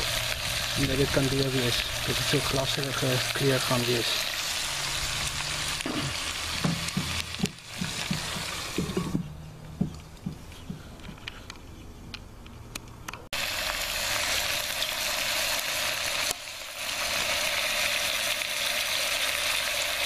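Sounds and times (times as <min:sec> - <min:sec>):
scattered crackles: 0:00.0 - 0:09.2
onions and meat sizzling: 0:00.0 - 0:09.3, 0:13.3 - 0:20.0.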